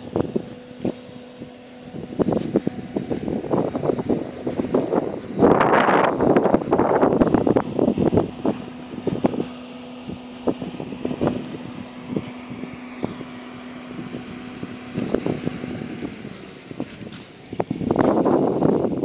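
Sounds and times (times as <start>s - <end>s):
steady low hum: 0.0s - 19.0s
wind buffeting microphone: 0.0s - 19.0s.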